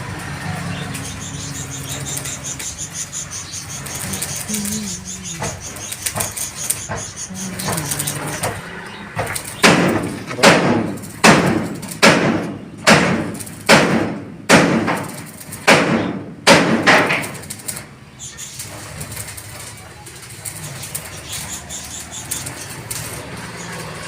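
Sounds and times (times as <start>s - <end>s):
sudden knocks: 7.7s - 15.1s.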